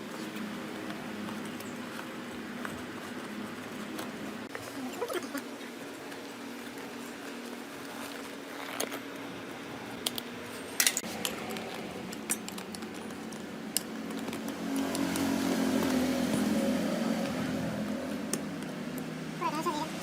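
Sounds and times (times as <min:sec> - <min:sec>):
metal parts clinking: 0:10.8 - 0:14.3.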